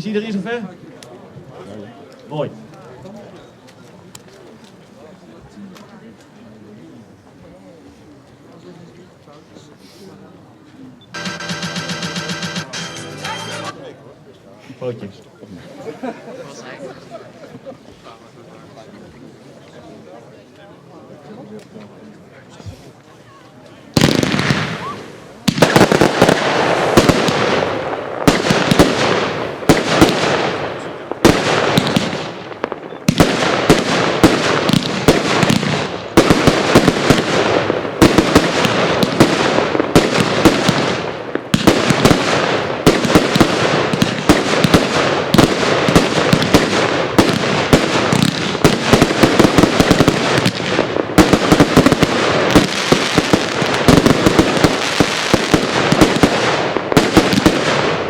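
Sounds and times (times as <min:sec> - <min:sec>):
fireworks banging and crackling: 0:11.1 - 0:13.8, 0:23.9 - 0:58.0.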